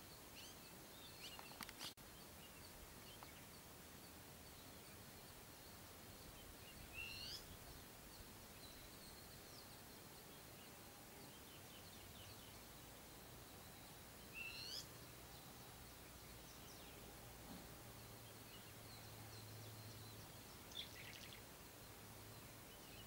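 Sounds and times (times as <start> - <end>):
faint chirping: 0.0 - 23.0
bird whistled call: 7.0 - 7.4, 14.4 - 14.9.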